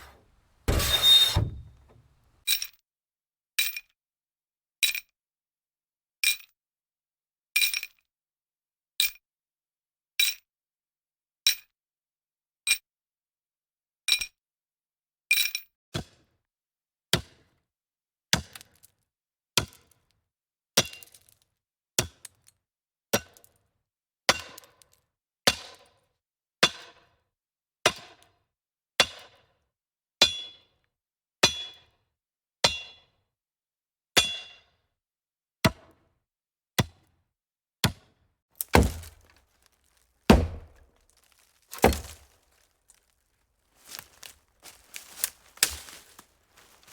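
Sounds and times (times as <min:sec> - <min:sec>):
axe chopping hollow tree: 0:38.6 - 0:39.3, 0:40.3 - 0:42.4, 0:43.8 - 0:46.9
axe chopping wood: 0:38.6 - 0:39.3, 0:40.3 - 0:42.4, 0:43.8 - 0:46.9.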